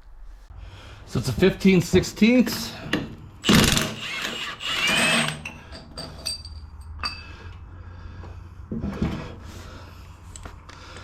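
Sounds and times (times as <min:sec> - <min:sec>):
power tool whirring: 0:03.4 - 0:05.5
metallic tool clinks: 0:06.0 - 0:07.3.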